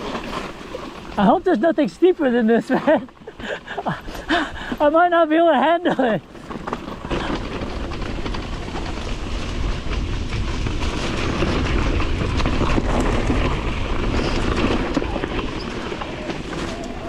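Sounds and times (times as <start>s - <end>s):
bike rattling and clattering: 0.0s - 17.0s
wind rumbling on microphone: 6.2s - 17.0s.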